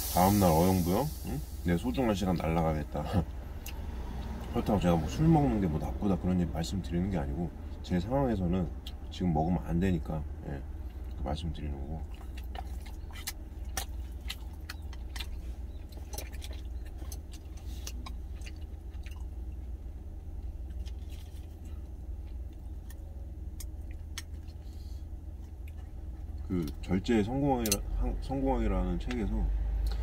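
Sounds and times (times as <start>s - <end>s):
low hum: 0.0s - 30.0s
man chewing food: 11.9s - 26.9s.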